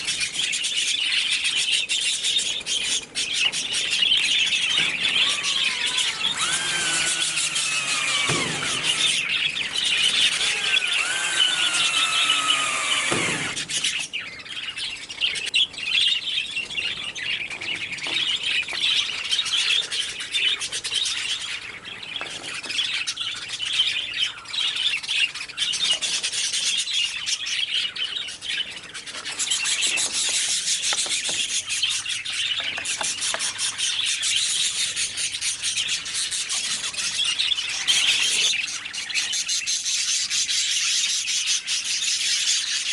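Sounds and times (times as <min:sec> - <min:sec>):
budgerigars chattering and chirping: 0:00.0 - 0:42.9.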